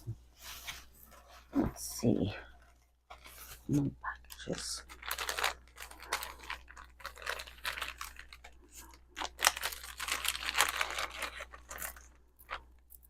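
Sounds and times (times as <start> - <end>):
packaging crinkling and tearing: 4.3 - 13.0.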